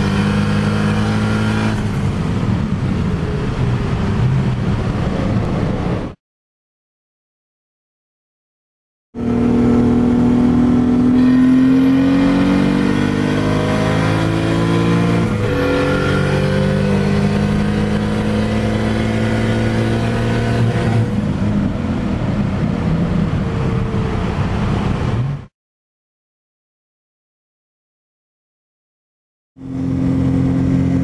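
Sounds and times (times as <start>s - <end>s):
car engine accelerating hard: 0.0s - 6.1s, 9.2s - 25.5s, 29.6s - 31.0s.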